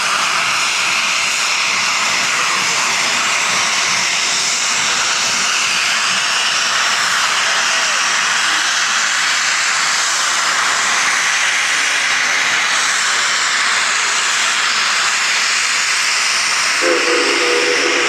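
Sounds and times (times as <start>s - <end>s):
steam locomotive venting steam: 0.0s - 18.0s
low chord steam whistle: 16.8s - 18.0s.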